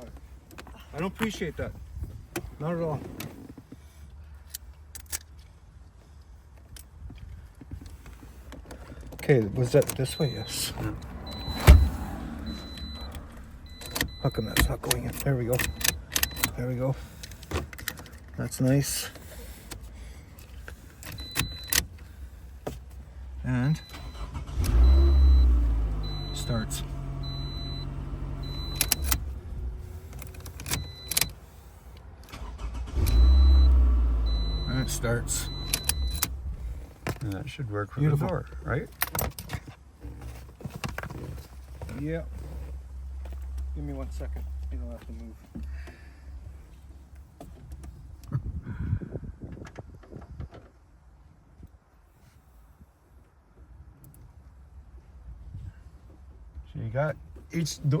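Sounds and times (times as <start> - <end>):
sharp clicks of lock parts: 4.4 - 5.5, 12.7 - 16.6, 28.5 - 29.2, 30.1 - 31.4, 35.5 - 36.3.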